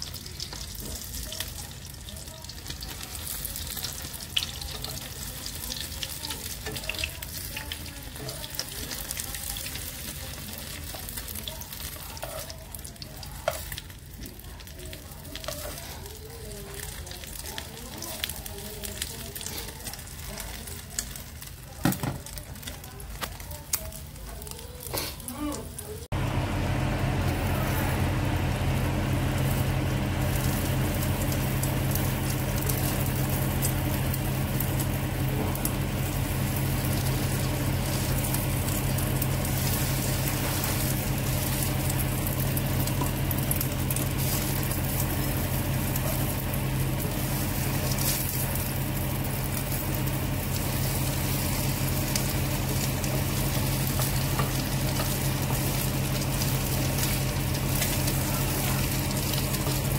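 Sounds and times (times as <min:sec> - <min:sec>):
omelette sizzling in hot oil: 0:00.0 - 0:25.2, 0:25.8 - 0:59.9
low hum: 0:26.1 - 0:59.9.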